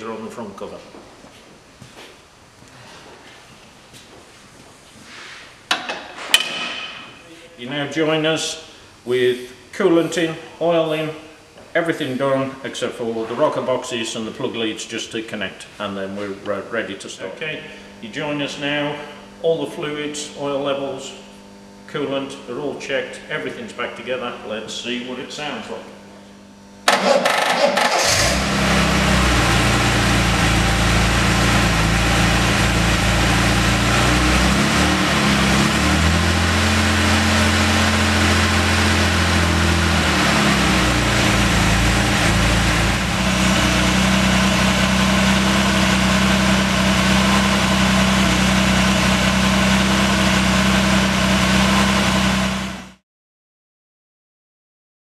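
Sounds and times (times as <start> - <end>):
engine starter cranking: 26.9 - 28.6
car engine idling: 26.9 - 52.9.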